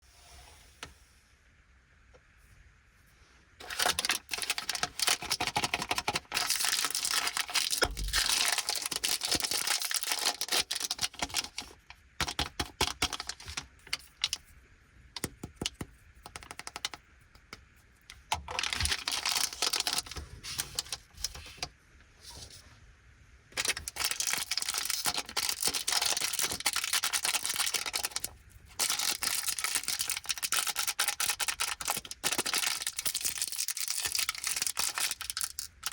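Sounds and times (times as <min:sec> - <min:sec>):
plastic wrappers crinkling and tearing: 0:03.6 - 0:14.4, 0:18.4 - 0:21.7, 0:23.6 - 0:35.9.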